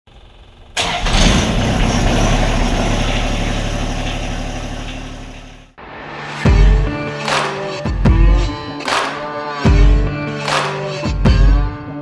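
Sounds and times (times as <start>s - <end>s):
tractor diesel engine running: 0.1s - 5.8s.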